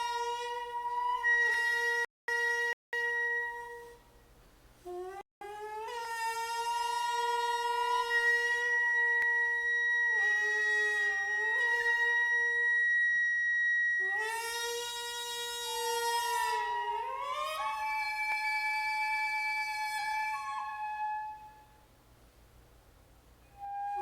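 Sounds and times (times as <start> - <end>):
wind instrument long sliding notes: 4.8 - 21.7, 23.5 - 24.0.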